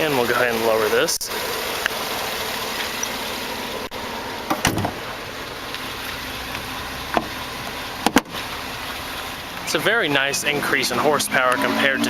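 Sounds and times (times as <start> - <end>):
hood latching clunk: 4.4 - 5.1, 7.1 - 7.4, 8.0 - 8.4
car hood knock: 4.5 - 5.0, 8.0 - 8.3.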